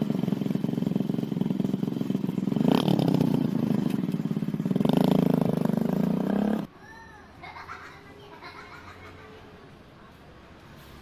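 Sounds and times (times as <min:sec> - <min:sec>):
motorcycle engine idling and revving: 0:00.0 - 0:06.7.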